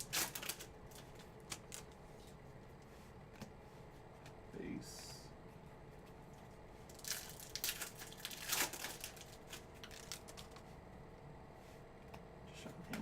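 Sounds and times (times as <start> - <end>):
wrapper crinkling and tearing: 0.0 - 1.9, 6.9 - 10.6.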